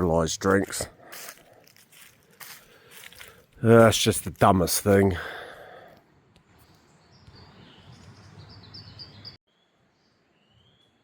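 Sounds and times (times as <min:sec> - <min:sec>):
outdoor rustle: 0:00.0 - 0:09.3
birds calling: 0:06.6 - 0:09.4.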